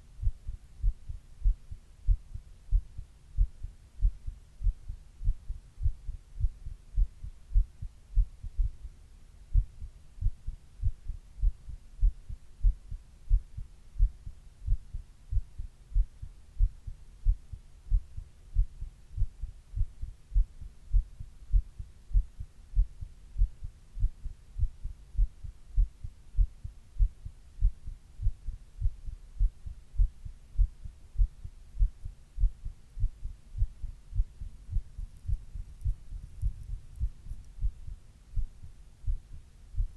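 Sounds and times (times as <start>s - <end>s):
heartbeat thumps: 0.2s - 39.9s.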